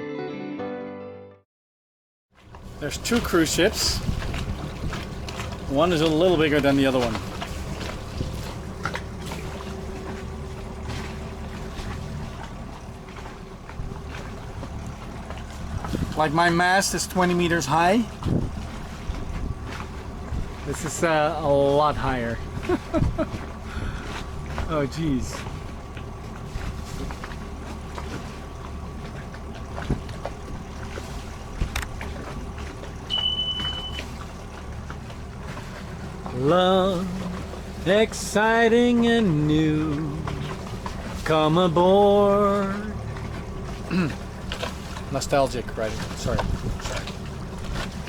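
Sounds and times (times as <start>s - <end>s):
boat engine running: 2.4s - 48.0s
high steady beep: 33.1s - 34.1s.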